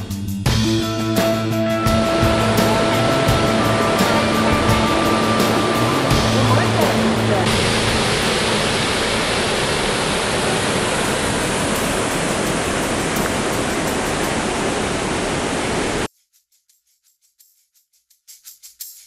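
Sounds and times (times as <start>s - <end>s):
waterfall rushing: 1.6s - 16.1s.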